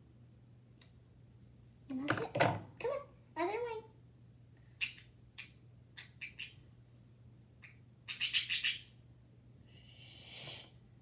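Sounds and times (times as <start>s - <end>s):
pet bird squawking and chirping: 4.8s - 6.6s, 7.6s - 9.0s.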